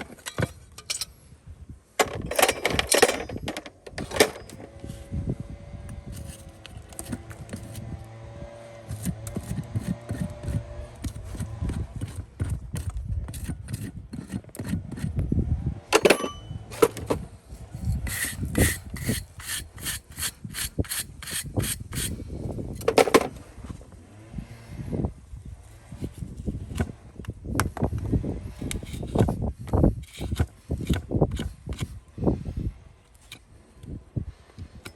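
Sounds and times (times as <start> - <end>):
rasp scraping hoof: 5.9 - 15.2, 15.9 - 23.8, 25.6 - 34.9.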